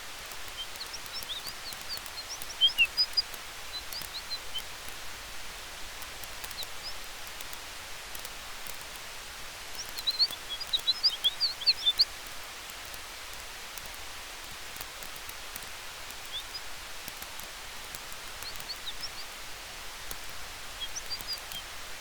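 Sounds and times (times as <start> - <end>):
campfire hiss and crackles: 0.0 - 22.0
wind in trees: 0.0 - 22.0
chirping bird calls: 0.2 - 4.9, 6.2 - 7.5, 9.6 - 12.3, 14.8 - 19.4, 20.0 - 21.8.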